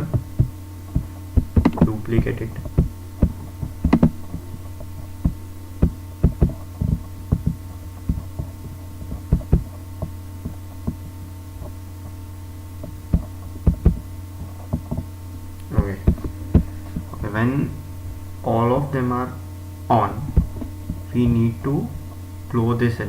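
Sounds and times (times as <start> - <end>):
computer mouse and keyboard clicks: 0.0 - 4.4
electrical mains hum: 0.0 - 23.0.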